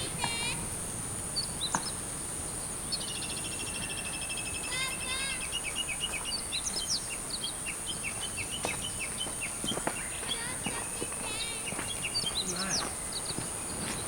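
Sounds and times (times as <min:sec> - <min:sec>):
birds singing: 0:00.0 - 0:14.0
bird trill of high notes: 0:03.0 - 0:13.4.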